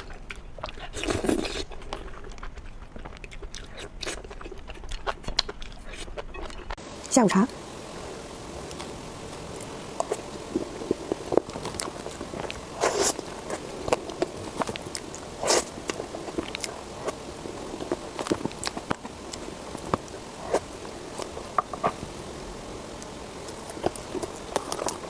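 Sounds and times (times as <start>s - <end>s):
mouth clicks and smacks: 0.0s - 6.8s.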